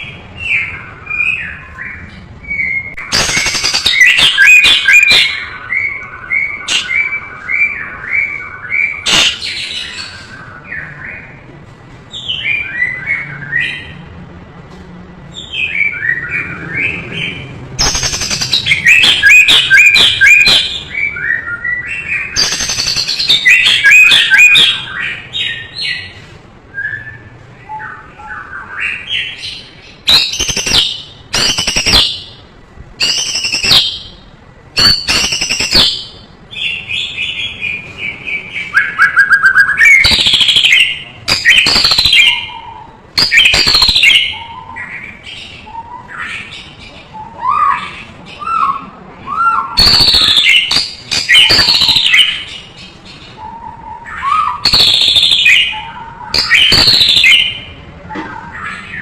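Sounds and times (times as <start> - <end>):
songbird singing: 0.0 - 11.5, 15.3 - 59.0.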